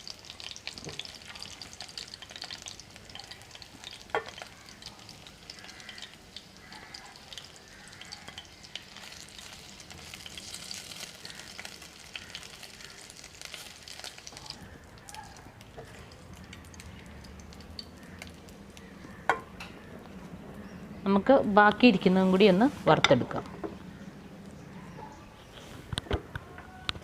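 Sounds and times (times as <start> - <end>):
chicken deep-frying in oil: 0.0 - 19.9.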